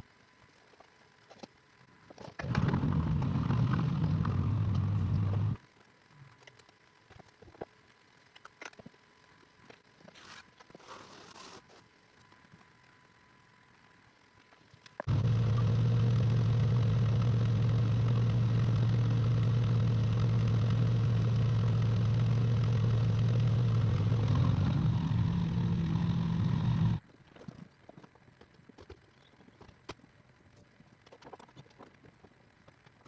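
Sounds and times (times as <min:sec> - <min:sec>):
excavator engine humming: 0:02.4 - 0:05.6, 0:15.1 - 0:27.0.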